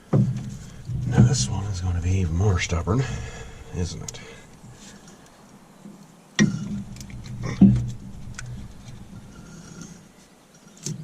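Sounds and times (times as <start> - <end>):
faint clicks and rattles: 6.0 - 11.0
sharp knocks with low ring: 6.4 - 9.2.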